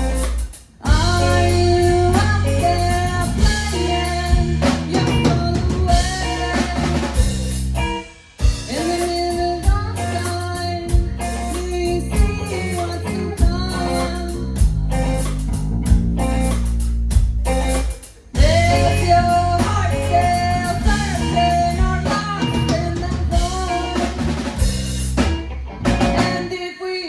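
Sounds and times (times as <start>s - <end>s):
lead vocal singing: 0.0s - 7.2s, 8.7s - 15.1s, 18.4s - 24.5s
bass: 0.0s - 26.6s
drum kit: 0.0s - 26.6s
guitar: 0.0s - 27.0s.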